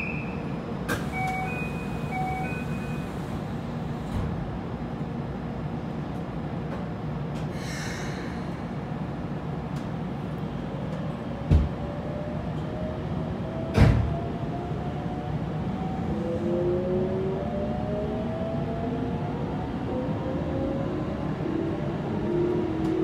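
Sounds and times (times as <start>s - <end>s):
train running gear rumble: 0.5s - 14.5s.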